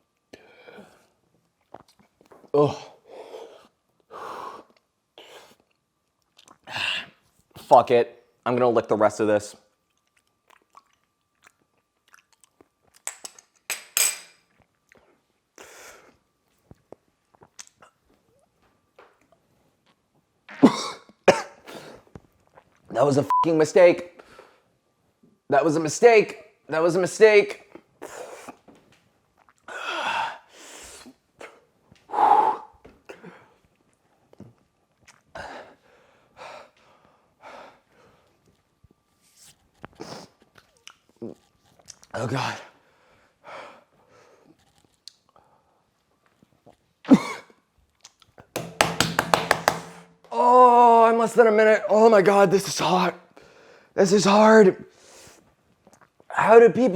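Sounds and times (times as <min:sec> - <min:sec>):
breath: 0:00.3 - 0:01.1, 0:24.2 - 0:24.7, 0:35.4 - 0:38.3, 0:53.4 - 0:54.0
wet mouth licking sounds: 0:35.0 - 0:35.3.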